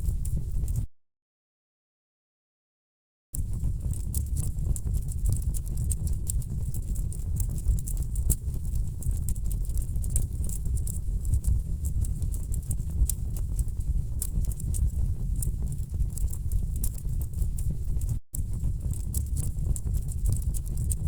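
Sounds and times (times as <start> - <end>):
wood fire crackling: 18.4 - 21.0.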